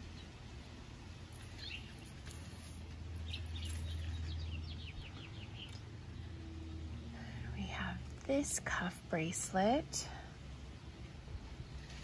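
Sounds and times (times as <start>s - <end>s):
low steady rumble: 0.0s - 12.0s
small bird chirping: 1.3s - 6.4s.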